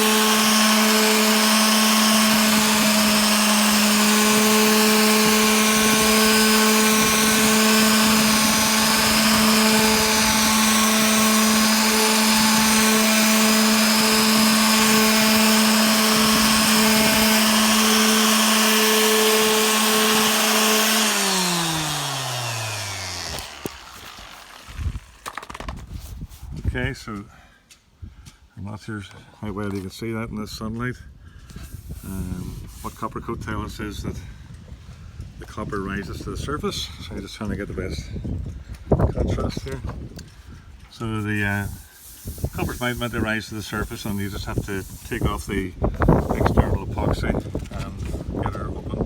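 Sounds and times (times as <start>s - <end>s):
electric sander running: 0.0s - 25.6s, 41.7s - 47.1s
sander winding down: 0.0s - 25.7s, 41.7s - 46.9s.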